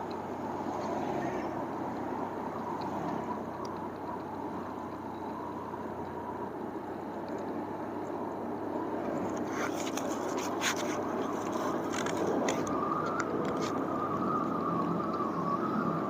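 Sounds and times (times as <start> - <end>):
wind and road noise: 0.0 - 16.0
scratchy crackling clicks: 9.2 - 13.9.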